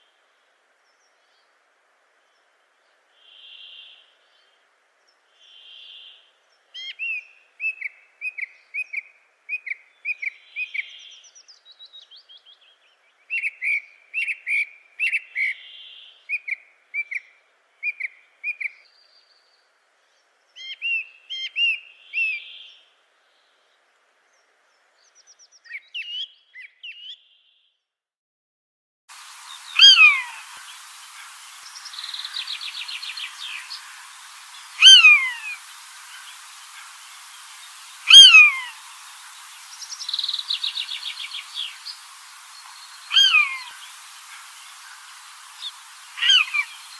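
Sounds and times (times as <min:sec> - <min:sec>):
bird calls sliding downward: 0:29.2 - 0:46.9
high bird chirps: 0:29.4 - 0:46.9
fast bird trill: 0:29.5 - 0:30.8, 0:31.6 - 0:46.9.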